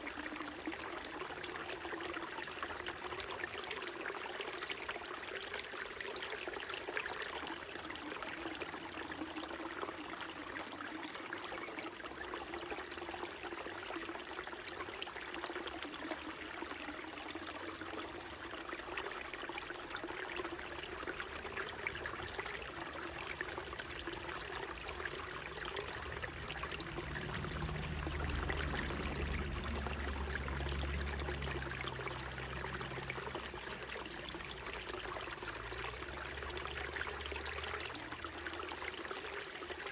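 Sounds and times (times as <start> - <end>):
stream babbling: 0.0 - 39.9
low rumble: 25.1 - 33.7.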